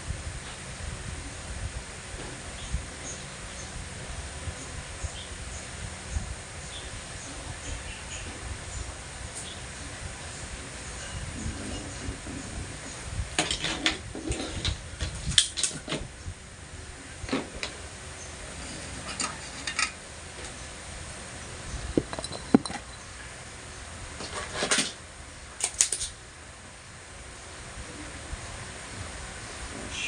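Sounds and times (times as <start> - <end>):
small metal tools clinking: 18.6 - 20.0, 22.0 - 23.0.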